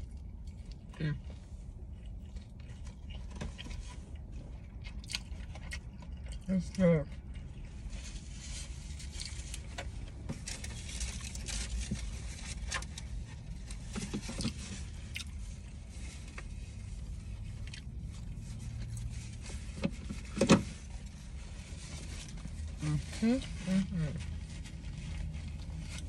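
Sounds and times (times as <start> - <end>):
wet chewing and mouth clicks: 0.0 - 7.9, 13.9 - 19.1.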